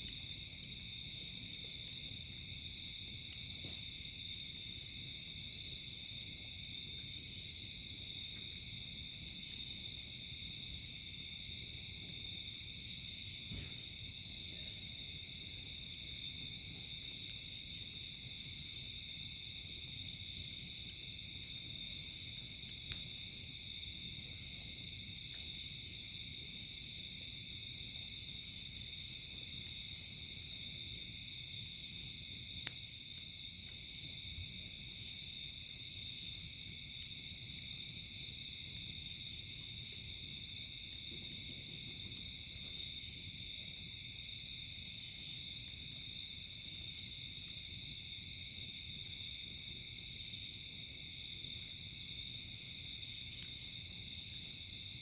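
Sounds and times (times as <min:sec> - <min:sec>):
campfire pops: 0:00.0 - 0:04.7, 0:11.4 - 0:29.2, 0:31.4 - 0:34.8, 0:36.7 - 0:40.0, 0:40.9 - 0:44.0
high insect chorus: 0:00.0 - 0:55.0.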